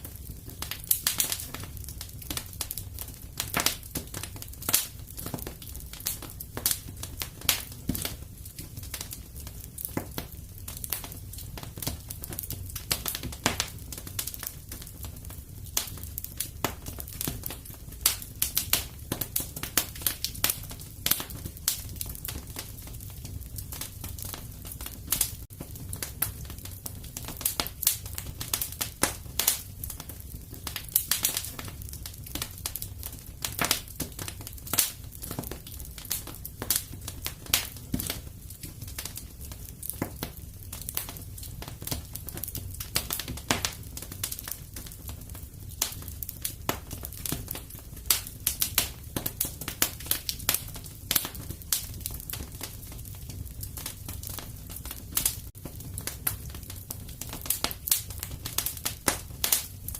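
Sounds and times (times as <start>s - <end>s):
fire crackling and popping: 0.0s - 59.9s
low fire rumble: 0.0s - 59.9s.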